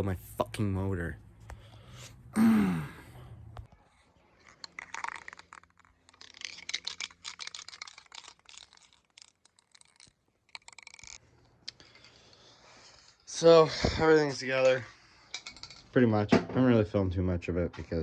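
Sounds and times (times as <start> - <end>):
short falling vocal sound: 2.4 - 3.1.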